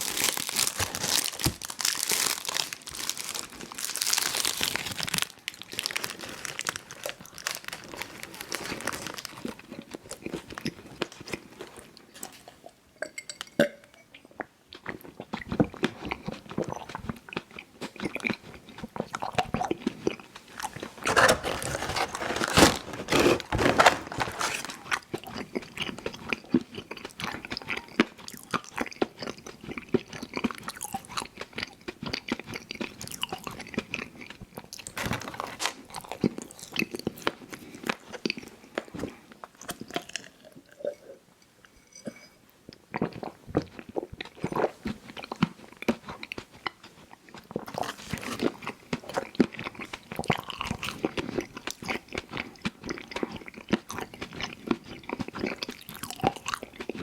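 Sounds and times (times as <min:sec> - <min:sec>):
chewing candy with mouth clicks: 0:14.1 - 0:20.9, 0:24.7 - 0:35.0, 0:35.7 - 0:41.0, 0:42.7 - 0:57.0.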